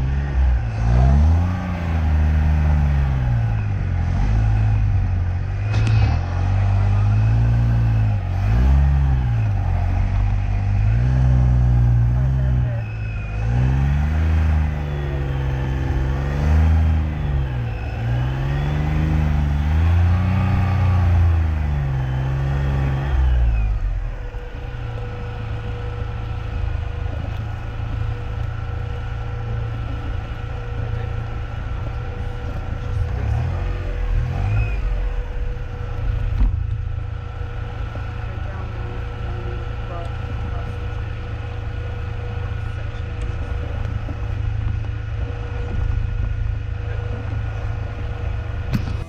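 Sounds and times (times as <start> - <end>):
car engine revving: 0.0 - 49.0.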